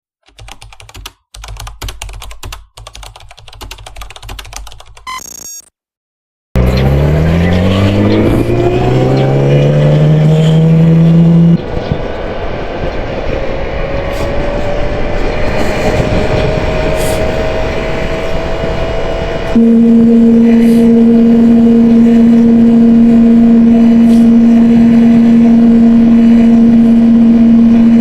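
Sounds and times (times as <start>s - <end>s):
low hum: 6.6s - 28.0s
motorcycle engine revving: 6.6s - 28.0s.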